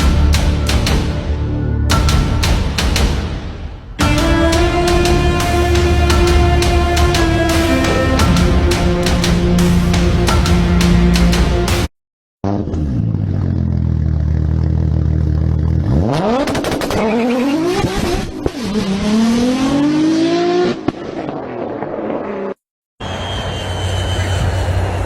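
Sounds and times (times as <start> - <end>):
engine revving: 4.0 - 25.0.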